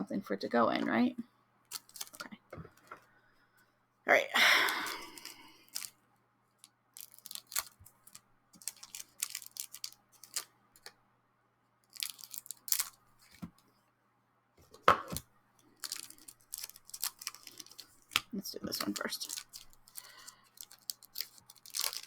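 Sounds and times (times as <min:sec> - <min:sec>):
packaging crackling and tearing: 0:01.7 - 0:02.3, 0:04.7 - 0:05.9, 0:07.0 - 0:10.9, 0:11.9 - 0:13.4, 0:15.1 - 0:22.0.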